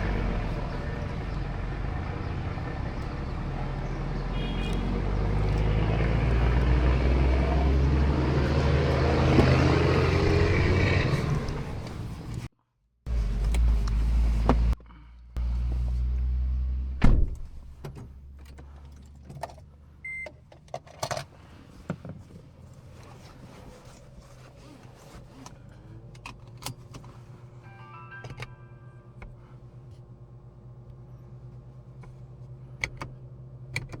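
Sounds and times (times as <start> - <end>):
window stopping thunk: 17.0 - 18.0
short beep: 27.7 - 29.1.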